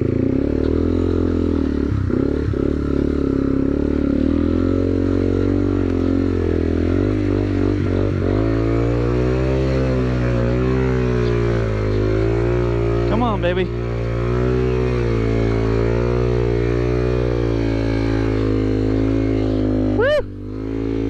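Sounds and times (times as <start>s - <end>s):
motorcycle engine running off-road: 0.0s - 21.0s.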